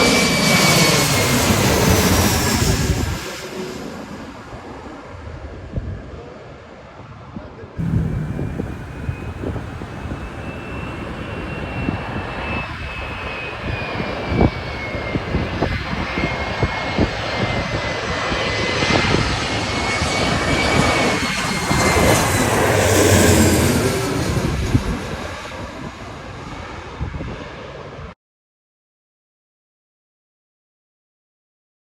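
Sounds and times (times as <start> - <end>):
jet engines roaring: 0.0 - 4.8, 7.8 - 28.1
high engine whine: 7.8 - 25.8.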